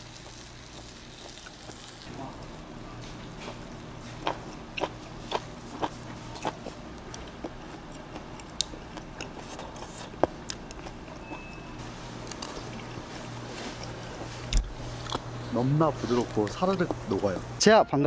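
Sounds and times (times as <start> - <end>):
person chewing crunchy food: 0.0 - 2.1, 3.4 - 15.4.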